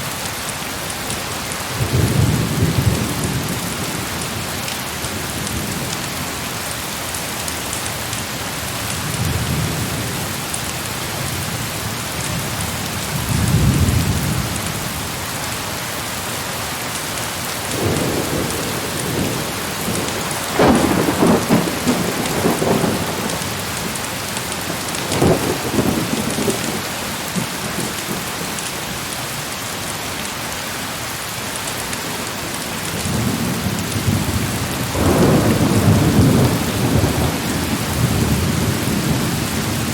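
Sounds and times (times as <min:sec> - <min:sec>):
heavy rain falling: 0:00.0 - 0:39.9
thunder rumbling: 0:17.7 - 0:28.6, 0:32.5 - 0:39.9.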